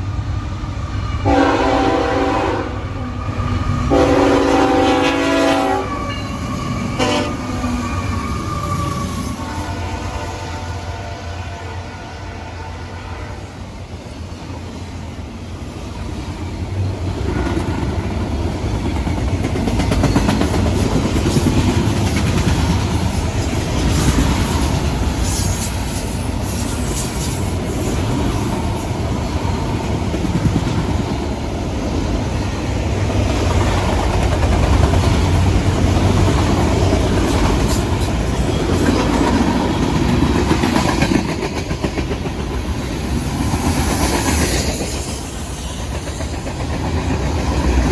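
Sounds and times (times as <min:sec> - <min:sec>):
train rumbling past: 0:00.0 - 0:47.9
wheels clacking over rail joints: 0:16.6 - 0:28.8.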